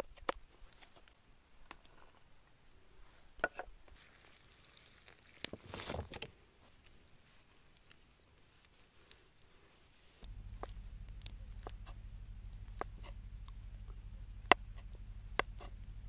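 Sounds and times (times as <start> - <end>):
water poured into metal pan: 4.0 - 5.8.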